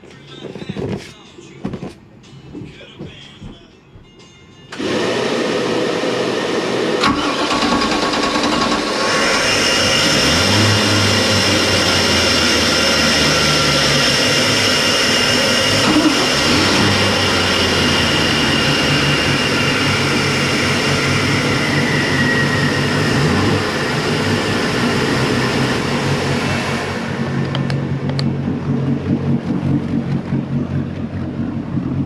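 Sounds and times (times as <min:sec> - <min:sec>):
boat engines idling: 0:07.0 - 0:32.0.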